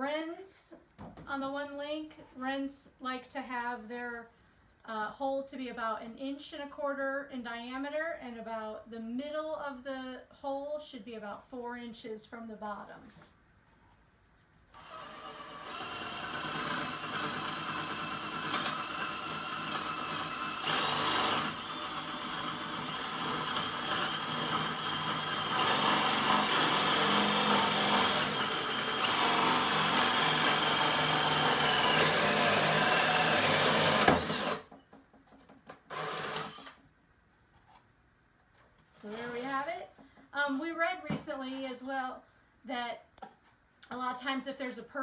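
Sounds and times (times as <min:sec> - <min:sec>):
electric drill whining: 0:14.8 - 0:34.7, 0:35.9 - 0:36.8.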